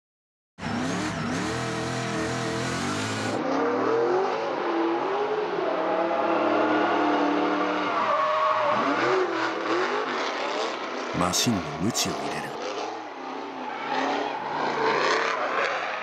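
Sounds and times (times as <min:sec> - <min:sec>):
car engine revving: 0:00.6 - 0:04.5.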